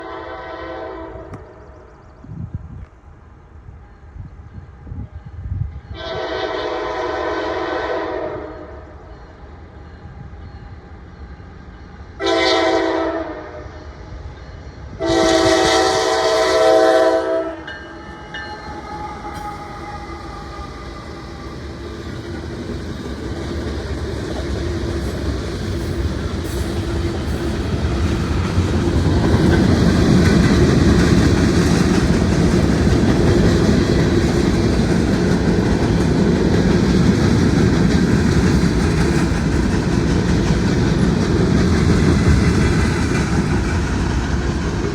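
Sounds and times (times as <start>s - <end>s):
locomotive horn: 0.0s - 1.5s, 5.8s - 8.9s, 12.2s - 13.9s, 15.0s - 21.2s
train engine rumble: 0.0s - 44.9s
train wheel clatter: 18.0s - 44.9s.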